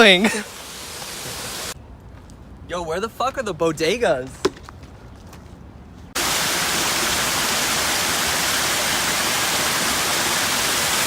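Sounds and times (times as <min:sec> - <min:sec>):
waterfall rushing water: 0:06.2 - 0:11.0.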